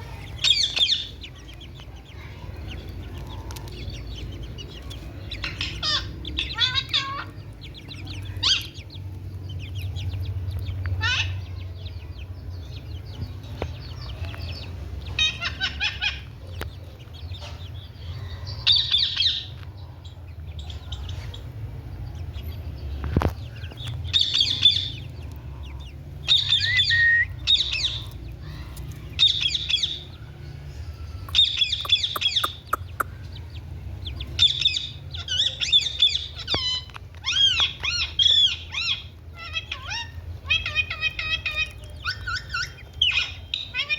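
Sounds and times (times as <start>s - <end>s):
parrot harsh calls: 5.4s - 7.3s, 34.4s - 43.9s.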